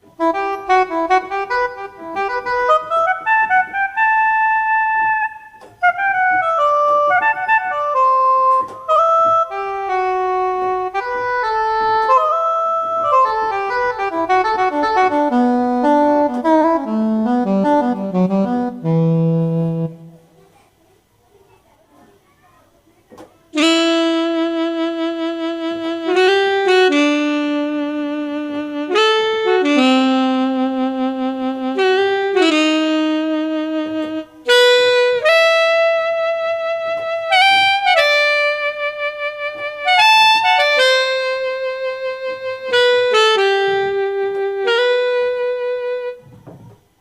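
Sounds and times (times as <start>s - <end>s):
keyboard saxophone melody: 0.0s - 20.5s, 23.5s - 47.0s.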